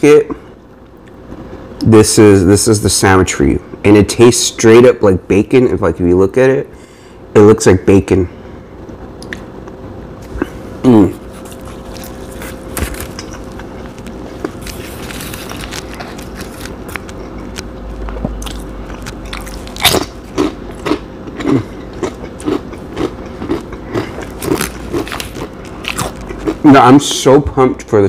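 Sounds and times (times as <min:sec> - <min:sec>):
chewing sandwich: 0:10.2 - 0:26.8
crunching tortilla chip: 0:10.9 - 0:26.7.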